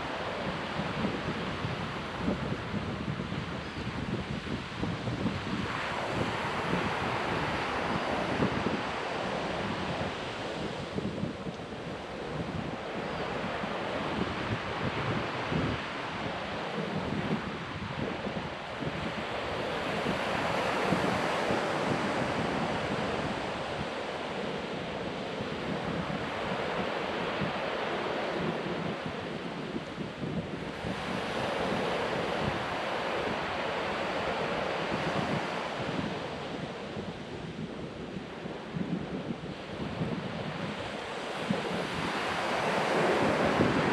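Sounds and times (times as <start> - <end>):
ocean surf breaking on beach: 0.0 - 43.9
wind on microphone: 0.0 - 43.9.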